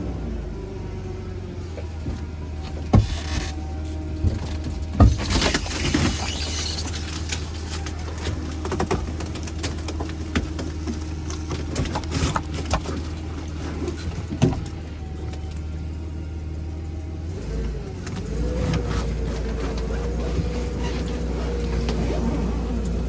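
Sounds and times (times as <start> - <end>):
forklift engine drone: 0.0 - 23.0
metal clanks and knocks: 2.0 - 15.5.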